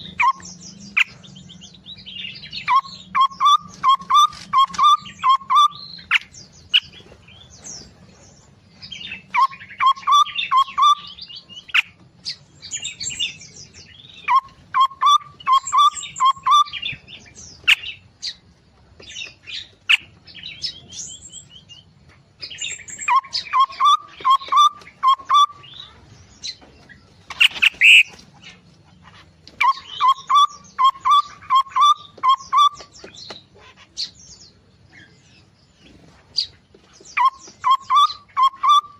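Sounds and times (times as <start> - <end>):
high bird chirping: 0.0 - 38.9
harsh bird call: 2.3 - 6.9, 9.1 - 12.0, 14.1 - 17.0, 27.3 - 28.2, 29.6 - 33.0
quick whistled bird notes: 27.4 - 28.1.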